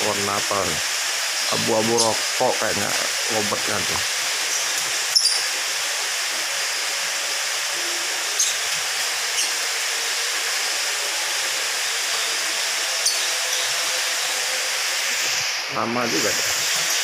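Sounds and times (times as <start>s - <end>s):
steady hiss: 0.0s - 17.0s
lovebirds chirping: 1.4s - 2.2s, 4.4s - 5.5s, 8.4s - 8.7s, 13.0s - 13.8s.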